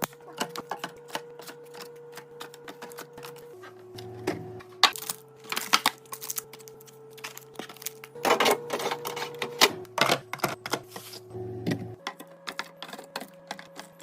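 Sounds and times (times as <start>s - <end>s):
plastic packaging rustling: 0.0s - 11.3s
plastic containers clicking and tapping: 9.9s - 11.0s, 11.7s - 14.0s.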